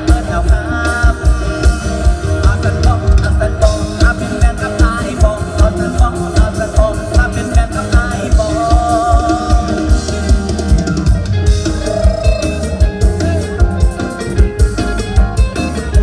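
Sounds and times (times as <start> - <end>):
fast bass drum beat: 0.0 - 16.0
wavering lead melody: 8.2 - 16.0.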